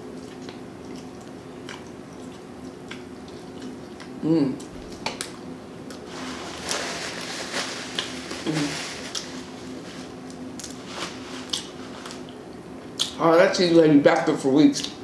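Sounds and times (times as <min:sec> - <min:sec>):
chewing and mouth smacking: 0:00.1 - 0:06.1, 0:11.4 - 0:13.2.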